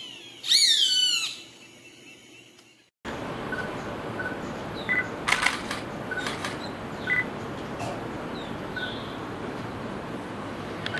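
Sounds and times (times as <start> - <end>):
small birds whistled calls: 0.0 - 2.9
steady outdoor hiss: 0.0 - 10.9
sharp clicks: 5.3 - 6.6.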